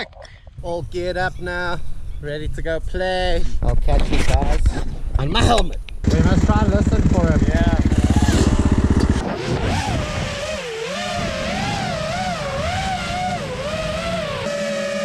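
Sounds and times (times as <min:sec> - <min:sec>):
dirt bike engine revving: 0:06.0 - 0:15.0.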